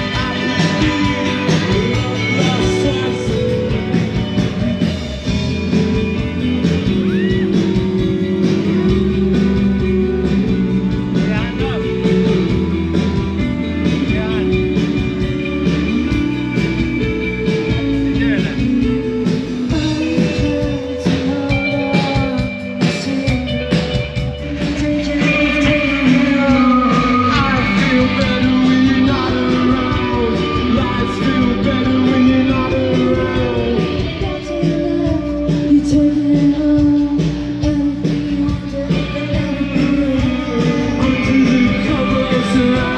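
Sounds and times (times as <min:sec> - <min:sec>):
rock music with singer: 0:00.0 - 0:42.9.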